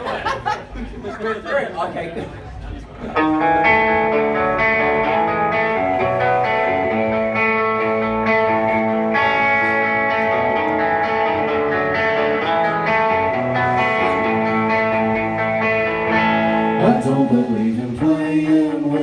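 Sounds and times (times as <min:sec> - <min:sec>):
rock band instrumental: 0:03.2 - 0:18.0
electric guitar chords: 0:03.2 - 0:19.0.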